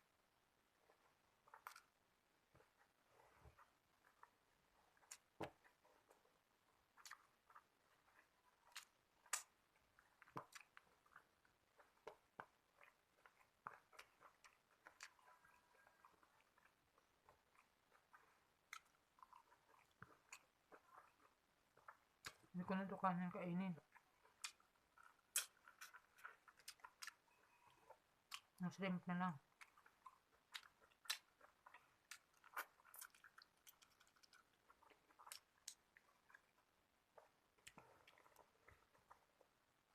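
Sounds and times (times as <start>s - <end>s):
person chewing: 0.8s - 22.6s, 23.8s - 28.6s, 29.4s - 39.9s
wet mouth clicks and smacks: 24.3s - 27.6s, 29.6s - 36.4s.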